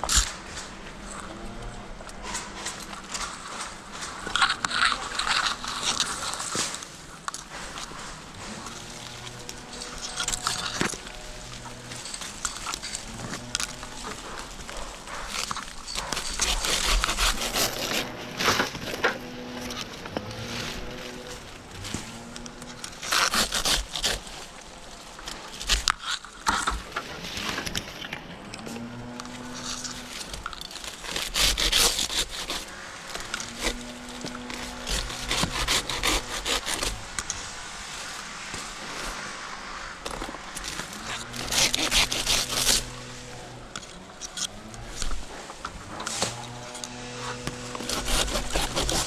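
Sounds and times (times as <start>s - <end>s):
dry palm fronds scraping: 0.0s - 49.0s
hand saw rasping through wood: 7.5s - 24.8s, 28.9s - 37.5s, 40.6s - 49.0s.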